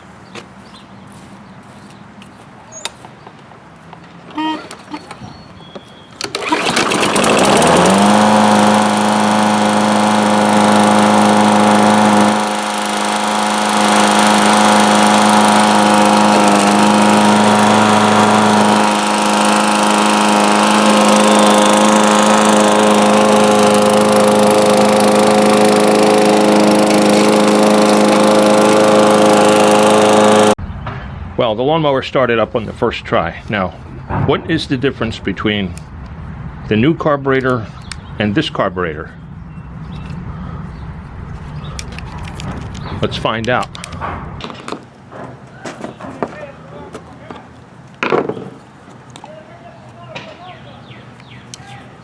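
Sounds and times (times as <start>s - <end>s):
lawn mower engine starting and running: 4.0s - 30.6s.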